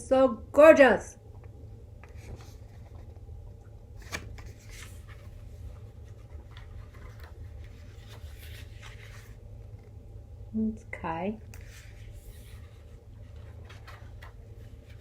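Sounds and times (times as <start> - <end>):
steady low hum: 0.0 - 15.0
photobook pages turning: 2.0 - 10.0, 11.5 - 15.0.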